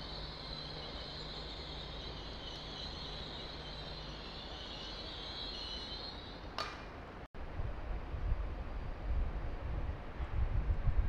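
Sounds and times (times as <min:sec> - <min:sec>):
train high-pitched whine: 0:00.0 - 0:06.6
low hum: 0:00.0 - 0:09.6
sharp click: 0:06.6 - 0:07.0.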